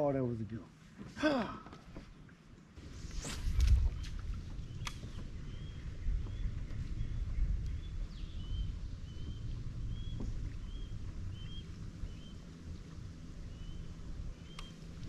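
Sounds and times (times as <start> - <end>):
wind rumble on microphone: 2.7 - 15.0
bird chirping: 4.6 - 12.4, 13.5 - 14.8.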